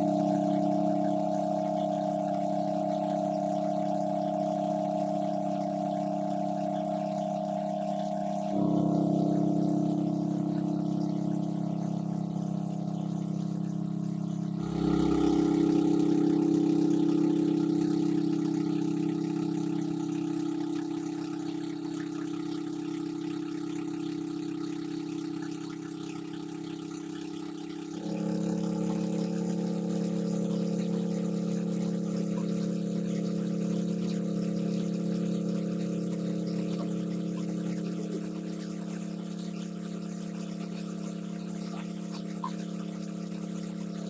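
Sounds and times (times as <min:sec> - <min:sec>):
small engine running steadily: 0:14.2 - 0:44.0.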